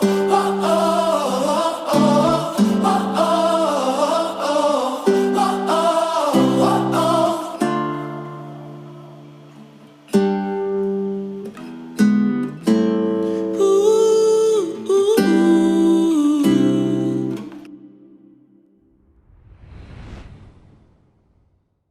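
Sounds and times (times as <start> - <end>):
acoustic guitar strumming: 0.0 - 4.4, 5.0 - 15.7
person singing: 0.0 - 8.0, 13.5 - 18.3.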